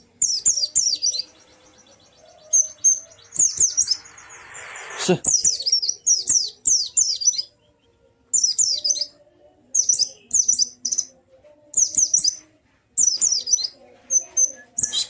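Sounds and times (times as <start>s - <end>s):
bird singing high whistled notes: 0.2s - 11.1s, 11.7s - 12.4s, 13.0s - 15.0s.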